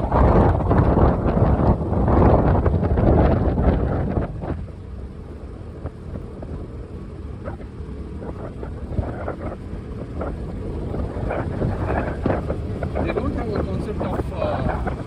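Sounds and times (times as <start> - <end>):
vehicle road rumble: 0.0 - 15.0
wind on microphone: 0.0 - 15.0.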